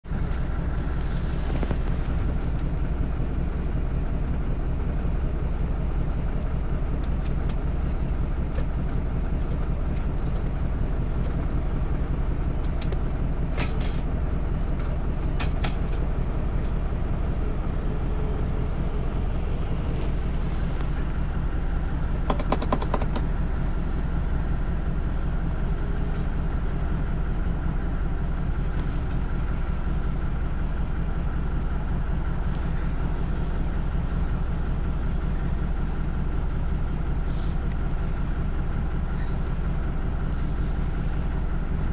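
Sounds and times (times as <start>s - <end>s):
bus engine droning: 0.0s - 41.9s
rattle of clicks: 22.1s - 23.3s
sharp ticks: 22.2s - 23.2s.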